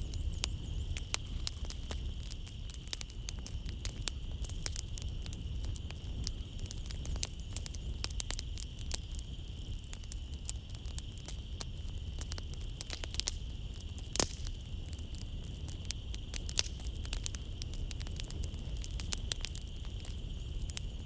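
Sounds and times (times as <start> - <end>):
crickets chirring: 0.0 - 21.0
wood fire crackling: 0.0 - 21.0.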